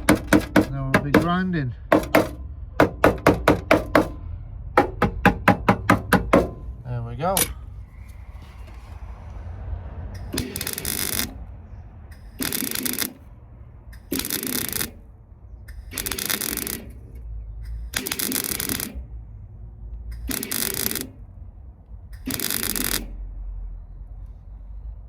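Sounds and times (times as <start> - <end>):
welder crackling bursts: 10.3 - 11.4, 12.1 - 13.2, 14.0 - 15.0, 15.7 - 17.0, 17.7 - 19.0, 20.1 - 21.2, 22.2 - 23.1.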